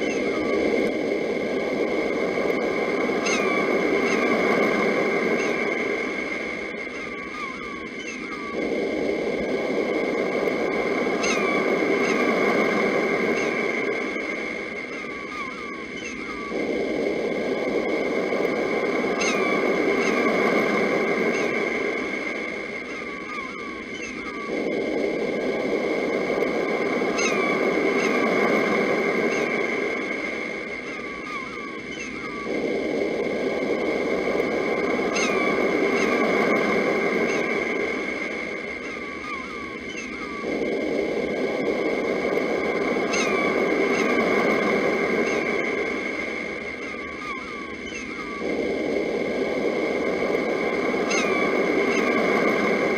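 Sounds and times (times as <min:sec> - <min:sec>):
birds chirping: 0:00.0 - 0:52.9
sea waves washing in: 0:16.5 - 0:52.9.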